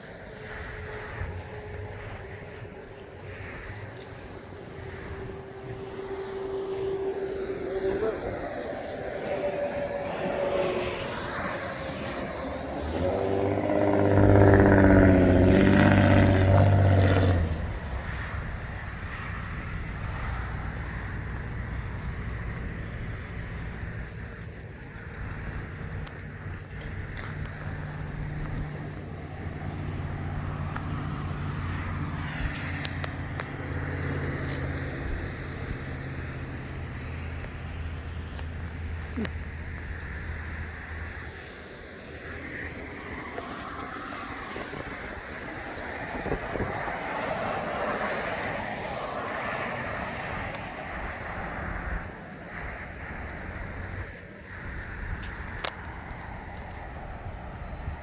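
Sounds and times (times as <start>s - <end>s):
vehicle engine running: 0.0s - 54.0s
tyre and wind noise: 41.9s - 58.0s.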